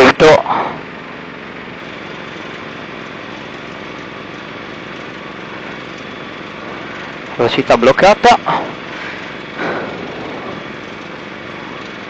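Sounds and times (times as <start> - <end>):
light aircraft engine and propeller: 0.0 - 12.0.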